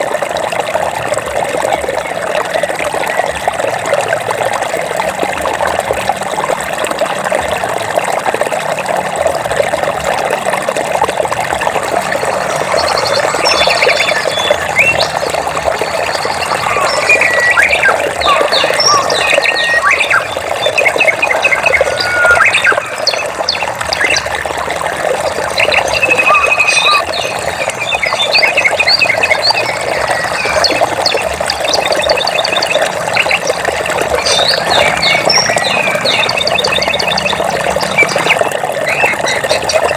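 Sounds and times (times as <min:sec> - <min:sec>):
running water rushing: 0:00.0 - 0:39.9
birds chirping and trilling: 0:11.9 - 0:39.9.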